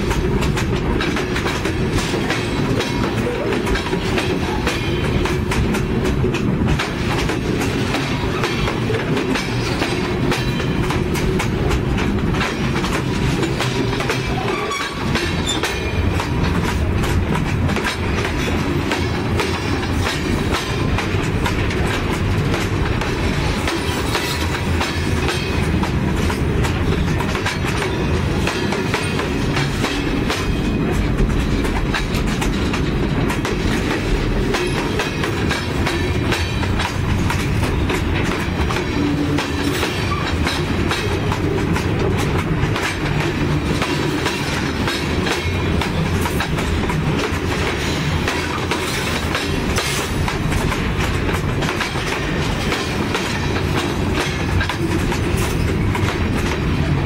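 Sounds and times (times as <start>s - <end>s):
wheels clicking over rail joints: 0.0s - 57.0s.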